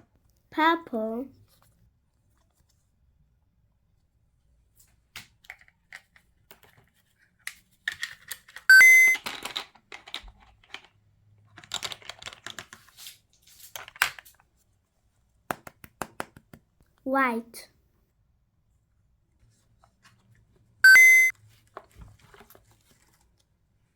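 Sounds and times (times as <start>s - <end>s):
coloring tools clicking and tapping: 5.2s - 12.9s, 15.5s - 16.8s.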